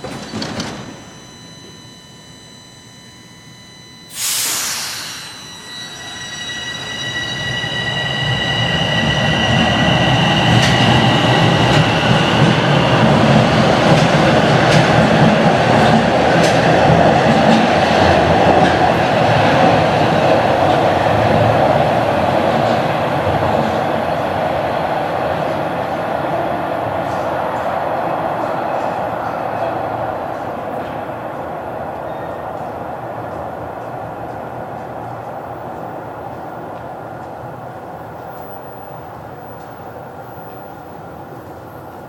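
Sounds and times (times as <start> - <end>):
rail clicks: 0.0 - 1.8, 9.2 - 24.6
subway train motors rumbling: 0.0 - 42.0
air hiss burst: 4.1 - 5.5.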